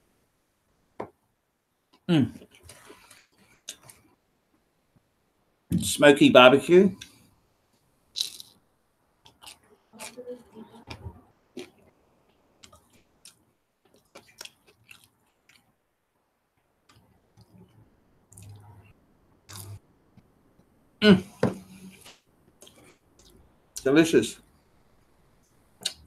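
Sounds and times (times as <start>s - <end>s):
man chewing pizza: 9.3s - 10.2s, 12.6s - 15.7s.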